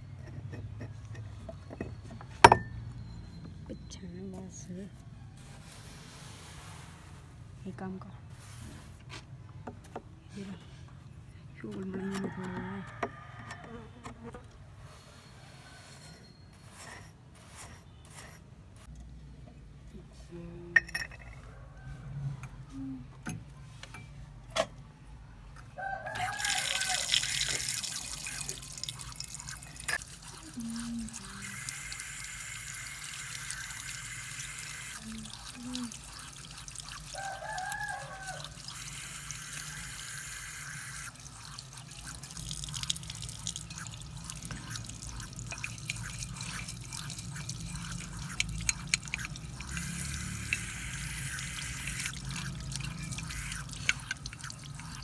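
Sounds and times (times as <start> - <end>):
rooster crowing: 12.1 - 13.9, 21.4 - 22.4, 25.8 - 28.5, 37.0 - 39.2
water running and dripping: 26.1 - 55.0.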